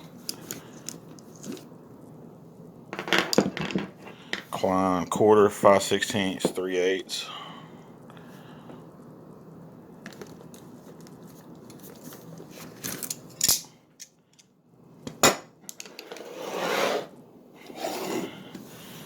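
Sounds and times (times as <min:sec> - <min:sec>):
rustling scrape: 0:16.0 - 0:18.9.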